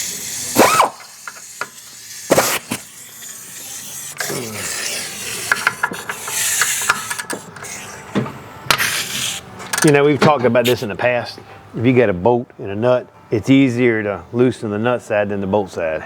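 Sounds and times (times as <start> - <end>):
metal scraping: 2.3 - 10.9
wrench clinking on metal: 9.6 - 10.2.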